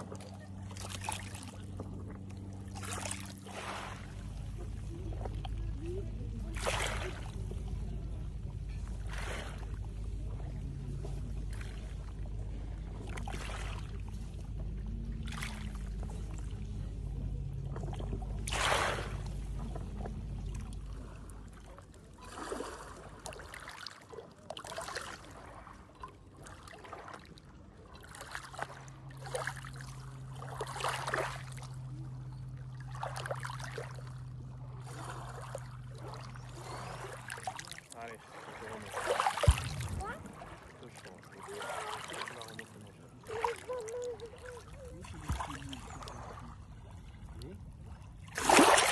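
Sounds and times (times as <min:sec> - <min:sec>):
low steady drone: 0:00.0 - 0:23.4, 0:25.2 - 0:48.9
low steady rumble: 0:00.0 - 0:48.9
water splashing and lapping: 0:00.0 - 0:48.9.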